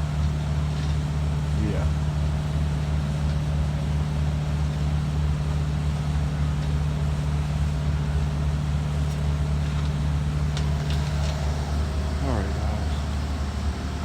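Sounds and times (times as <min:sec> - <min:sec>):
machine droning: 0:10.3 - 0:14.0.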